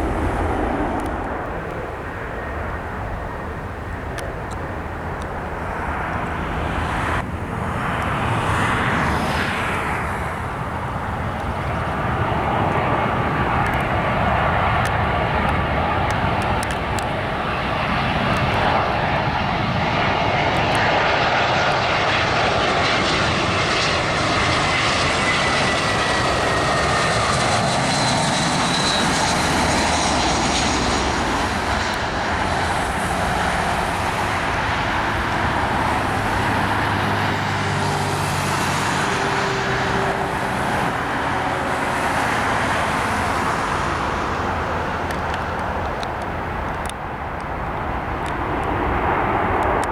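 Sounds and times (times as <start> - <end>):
rushing jet noise: 0.0 - 4.1, 4.7 - 49.9.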